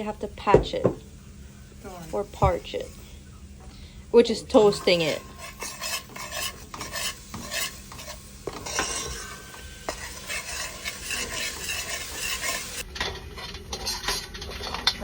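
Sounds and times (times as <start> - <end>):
light sizzle: 0.0 - 15.0
spoon scraping flour in a pot: 4.5 - 15.0.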